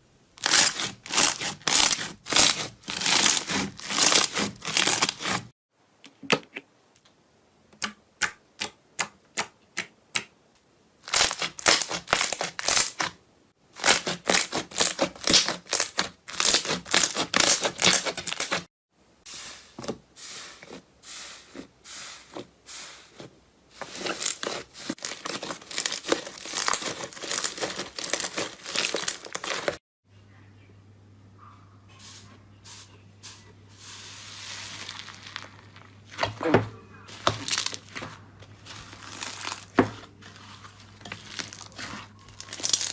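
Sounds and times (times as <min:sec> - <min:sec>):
slime crackling and crunching: 0:00.4 - 0:05.5, 0:11.0 - 0:13.2, 0:13.8 - 0:18.7, 0:23.8 - 0:29.8, 0:34.2 - 0:42.9.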